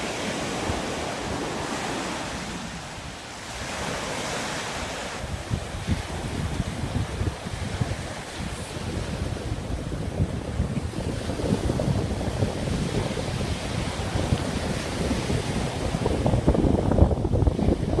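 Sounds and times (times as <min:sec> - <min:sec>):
surf washing on shore: 0:00.0 - 0:18.0
wind buffeting microphone: 0:00.0 - 0:18.0.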